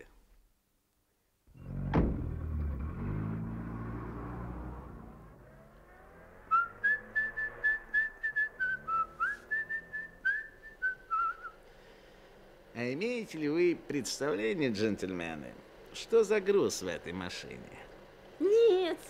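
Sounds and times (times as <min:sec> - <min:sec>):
car engine pulling away: 0:01.5 - 0:11.5
sharp thump: 0:01.9 - 0:02.8
man whistling: 0:06.5 - 0:11.6.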